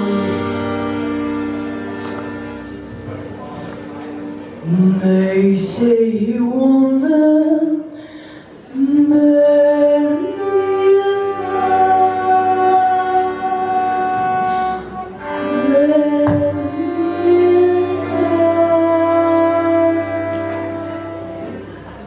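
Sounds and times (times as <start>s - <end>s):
person singing long notes: 0.0s - 1.6s, 8.7s - 21.9s
musical accompaniment: 0.0s - 22.0s.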